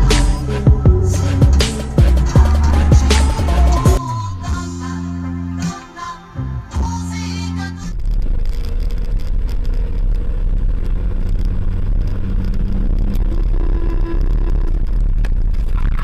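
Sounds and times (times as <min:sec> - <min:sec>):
car engine and road noise: 0:00.0 - 0:04.5, 0:06.7 - 0:16.0
music: 0:00.0 - 0:08.0.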